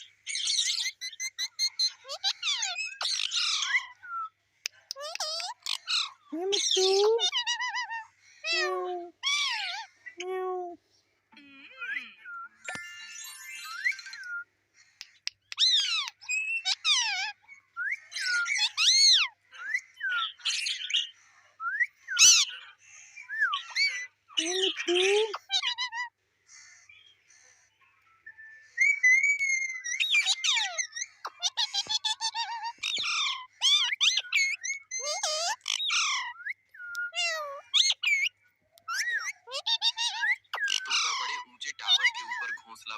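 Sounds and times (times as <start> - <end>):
parrot whistling and squawking: 0.3 - 9.9, 11.8 - 14.5, 15.1 - 21.0, 21.6 - 26.2, 28.2 - 42.7
parrot squawking and whistling: 28.5 - 42.7.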